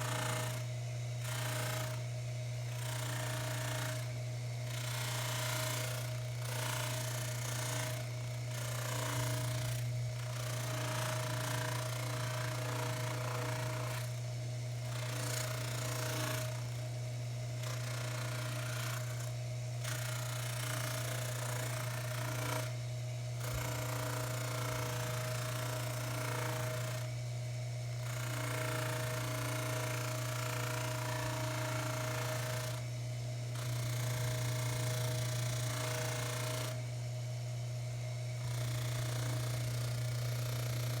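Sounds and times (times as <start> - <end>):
lathe motor hum: 10.6 - 14.1, 28.1 - 32.8.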